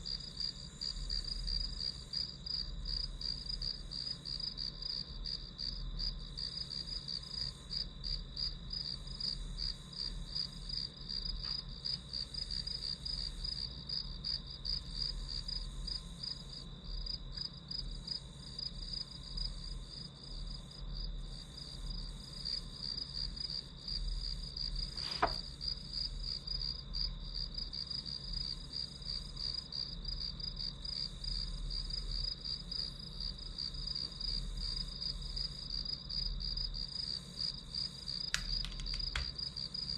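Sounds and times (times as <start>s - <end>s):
crickets chirping: 0.0s - 39.9s
sharp click: 38.4s - 39.3s.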